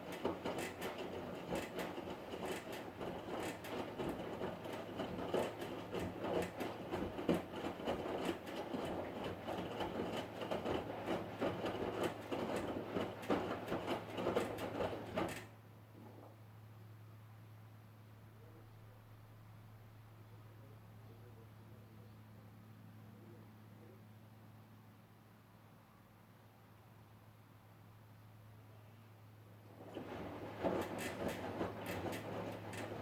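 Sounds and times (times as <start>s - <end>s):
washing machine clattering: 0.0s - 15.5s, 29.7s - 33.0s
washing machine low hum: 0.0s - 25.8s, 26.9s - 33.0s.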